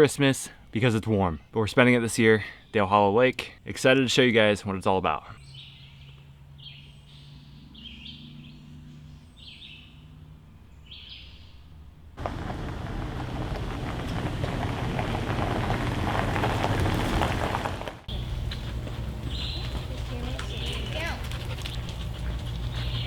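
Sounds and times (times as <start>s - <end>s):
bird chirping: 5.4s - 23.0s.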